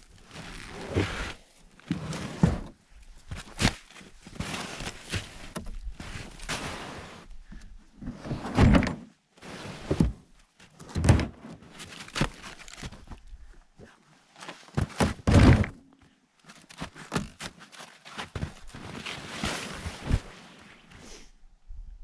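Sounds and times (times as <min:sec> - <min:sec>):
scuffing and rustling: 0:02.0 - 0:07.3, 0:16.4 - 0:21.0.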